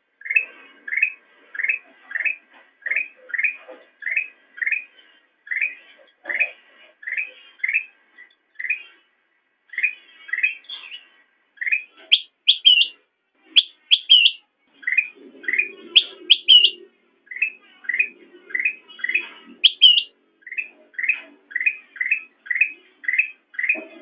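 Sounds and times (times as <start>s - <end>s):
bulbul singing chirps: 11.6s - 24.0s.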